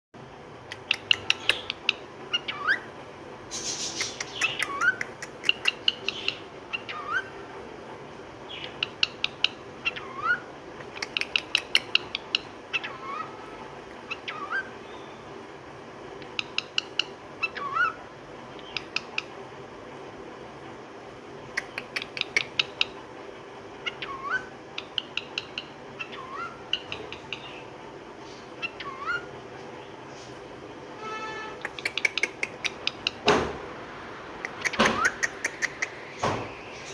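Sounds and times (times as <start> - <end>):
cockatiel clicking and whistling: 0.7 - 2.9, 3.7 - 7.3, 8.6 - 13.2, 16.2 - 17.9, 18.6 - 19.3, 21.5 - 23.0, 23.8 - 27.6, 31.6 - 33.2, 34.4 - 36.0.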